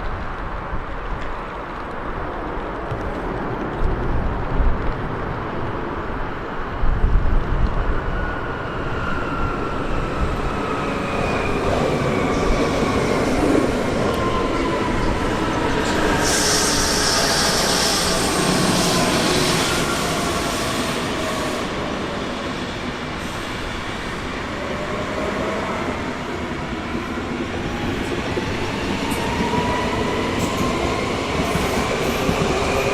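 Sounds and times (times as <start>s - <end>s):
train rolling rumble: 0.0s - 32.9s
high hiss: 15.8s - 22.0s.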